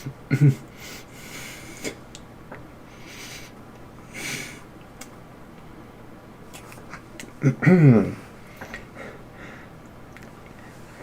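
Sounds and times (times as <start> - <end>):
person breathing and sniffing: 0.7 - 2.0, 2.9 - 4.6.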